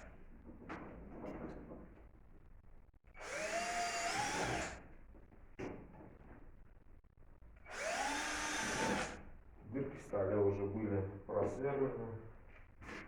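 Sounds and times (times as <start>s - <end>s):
electric drill-driver whining: 3.2s - 4.8s, 7.7s - 9.2s.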